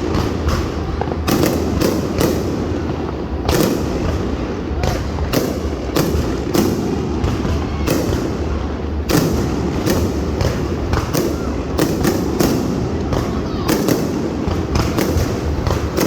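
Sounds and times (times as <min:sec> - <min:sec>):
fireworks bangs with echo: 0:00.0 - 0:16.0.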